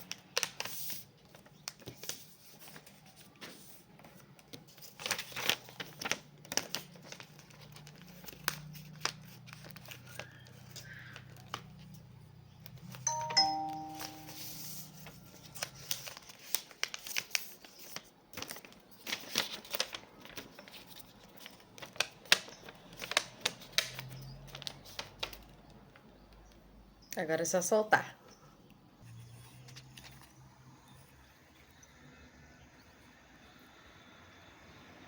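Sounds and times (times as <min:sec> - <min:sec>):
paper rustling and crackling: 0:00.0 - 0:13.0, 0:13.6 - 0:25.8
chime tones: 0:13.1 - 0:14.7.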